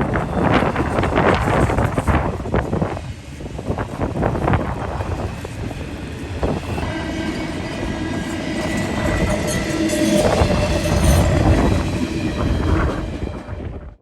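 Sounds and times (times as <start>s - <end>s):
freight train wheels rumbling on rails: 0.0s - 14.0s.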